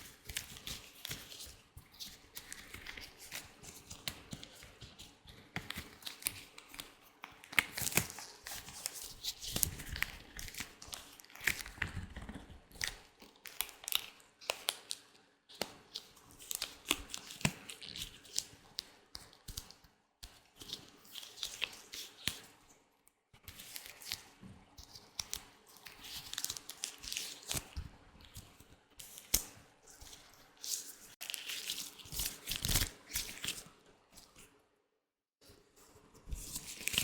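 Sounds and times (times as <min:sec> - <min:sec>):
latex gloves crinkling: 0:23.6 - 0:34.5.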